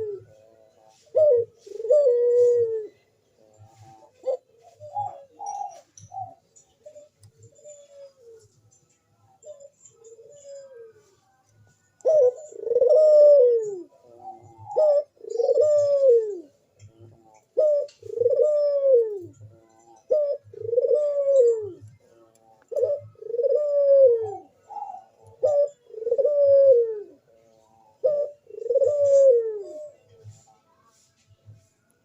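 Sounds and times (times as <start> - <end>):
dove cooing: 0.0 - 8.6, 9.3 - 30.5.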